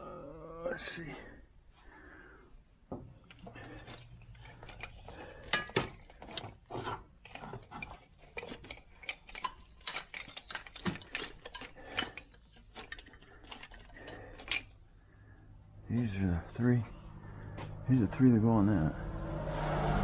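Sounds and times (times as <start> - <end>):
hand tools clicking and knocking: 2.9 - 14.8.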